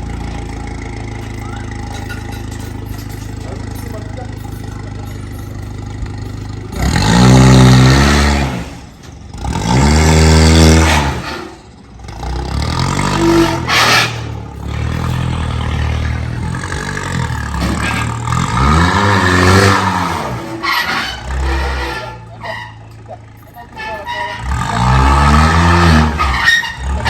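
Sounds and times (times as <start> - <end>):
vehicle engine revving: 6.1 - 22.8, 23.7 - 27.0.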